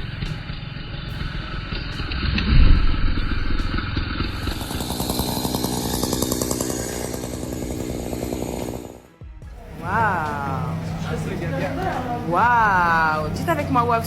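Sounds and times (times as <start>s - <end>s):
chainsaw running: 0.0s - 9.2s.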